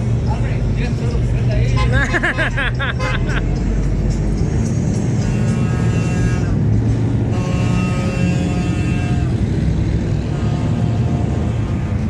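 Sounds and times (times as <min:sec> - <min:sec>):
truck engines rumbling: 0:00.0 - 0:12.0
long chord-like horn tones: 0:05.2 - 0:06.6, 0:07.3 - 0:09.5.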